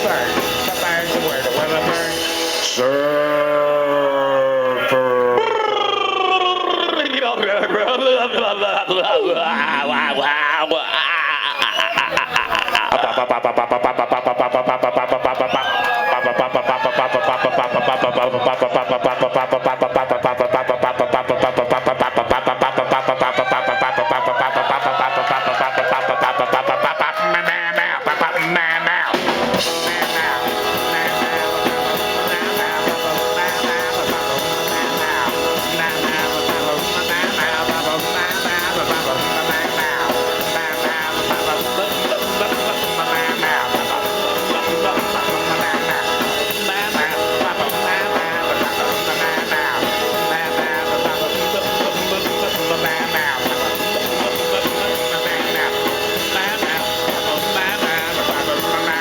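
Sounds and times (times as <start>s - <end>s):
drum kit: 0.0s - 7.0s, 28.1s - 59.0s
electric guitar: 0.0s - 7.5s, 8.9s - 59.0s.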